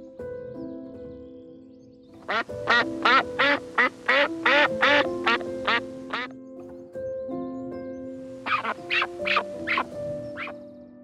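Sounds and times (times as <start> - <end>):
duck quacking: 2.3 - 6.3, 8.5 - 10.5.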